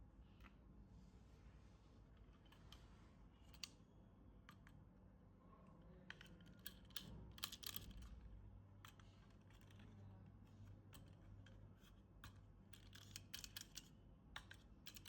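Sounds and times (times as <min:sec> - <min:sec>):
faint clicks and taps: 0:04.4 - 0:04.9, 0:05.6 - 0:15.0.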